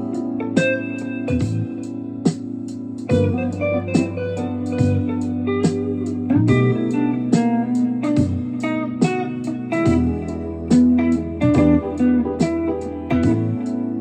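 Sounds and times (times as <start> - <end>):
plucked guitar notes: 0.0 - 14.0
sustained low bass notes: 1.3 - 1.8, 3.1 - 7.2, 7.8 - 8.7, 9.5 - 13.7.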